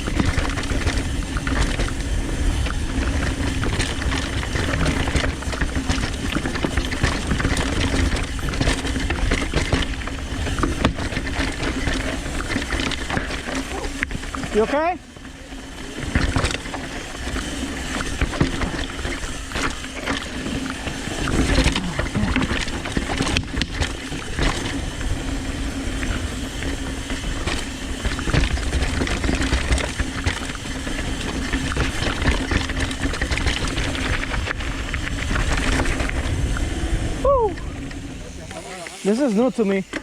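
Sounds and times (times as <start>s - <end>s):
bike rattling and knocking: 0.0s - 40.0s
tyres rolling over dirt and rock: 0.0s - 40.0s
wind rushing over microphone: 30.9s - 38.6s.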